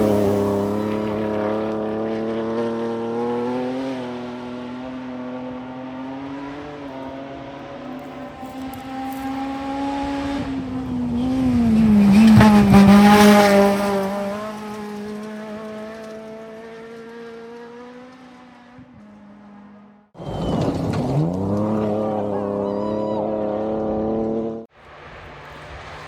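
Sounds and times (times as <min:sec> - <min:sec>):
car engine: 0:00.0 - 0:26.0
gravel and tyre noise: 0:00.0 - 0:26.0
rally car passing at full throttle: 0:00.0 - 0:26.0.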